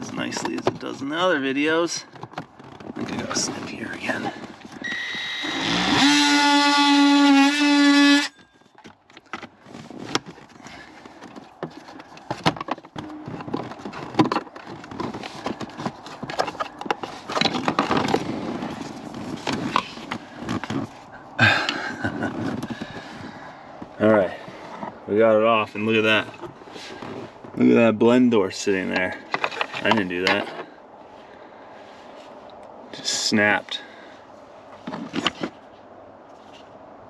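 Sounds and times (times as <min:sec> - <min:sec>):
power cutting tool buzzing: 0:04.8 - 0:08.3.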